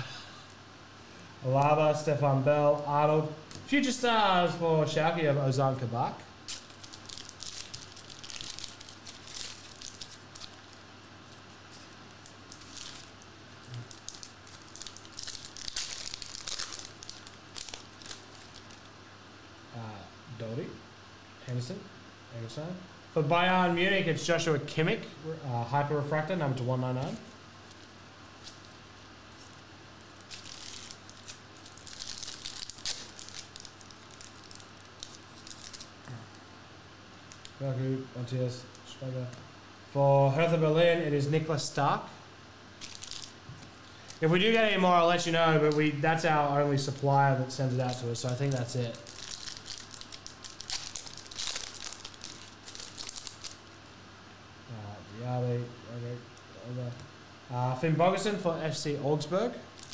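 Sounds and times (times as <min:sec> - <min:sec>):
plastic wrapper crinkling and tearing: 0:06.4 - 0:19.0, 0:27.0 - 0:36.3, 0:37.3 - 0:37.6, 0:42.8 - 0:54.0, 0:59.7 - 0:59.9.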